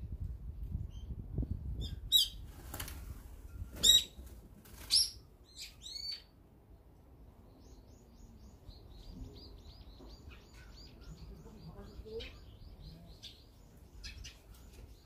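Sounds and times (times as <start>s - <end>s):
high bird chirps: 4.9s - 6.3s.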